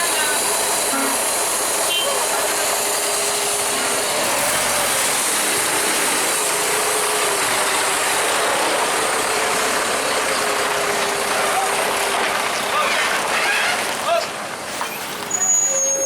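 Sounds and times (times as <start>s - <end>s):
steady mechanical whine: 0.0s - 12.0s
truck engine rattling: 0.0s - 16.0s.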